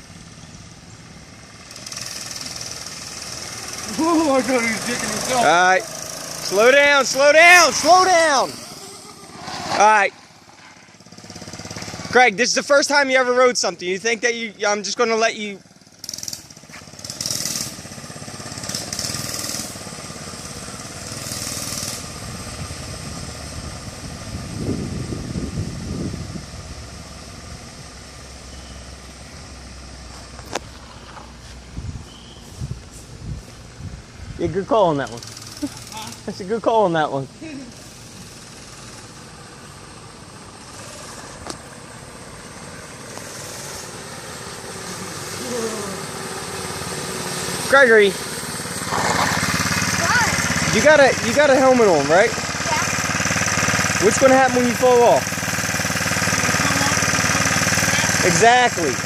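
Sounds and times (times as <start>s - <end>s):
small engine running: 0.0s - 31.5s, 34.5s - 59.0s
short hiss bursts: 30.8s - 33.8s, 43.1s - 44.1s.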